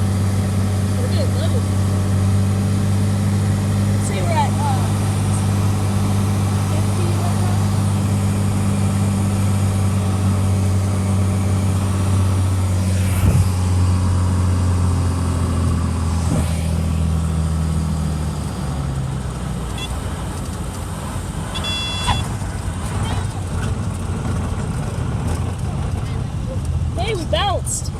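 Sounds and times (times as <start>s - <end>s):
propeller plane engine droning: 0.0s - 27.5s.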